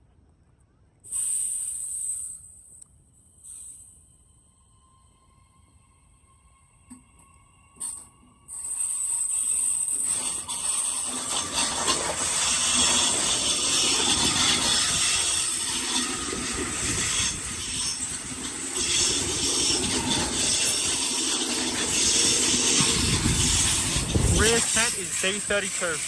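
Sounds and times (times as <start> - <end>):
train wheels running on rails: 10.0 - 26.0.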